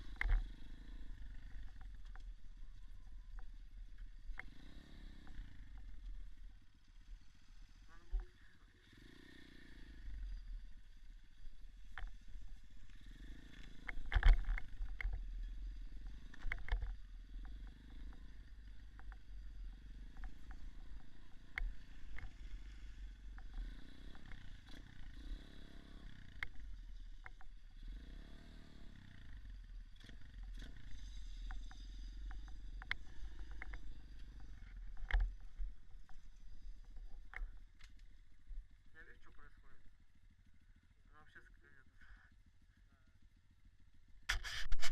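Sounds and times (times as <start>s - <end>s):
knocks and rattles over rough ground: 0.0s - 8.4s, 10.0s - 39.4s
dirt bike engine revving: 0.0s - 37.7s.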